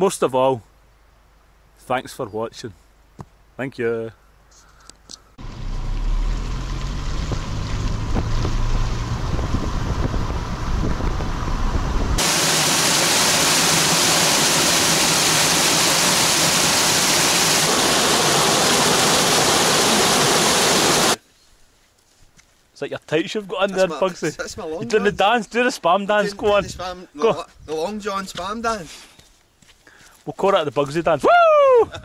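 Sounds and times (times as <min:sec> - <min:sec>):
low rumble: 0:05.4 - 0:12.2
loud rushing noise: 0:08.1 - 0:21.2
even hiss: 0:12.2 - 0:21.2.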